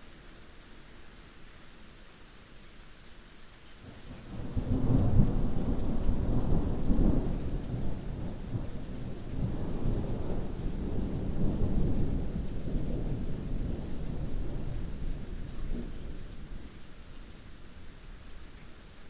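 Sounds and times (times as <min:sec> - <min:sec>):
steady rain: 0:00.0 - 0:19.0
thunder rumbling: 0:04.1 - 0:17.9.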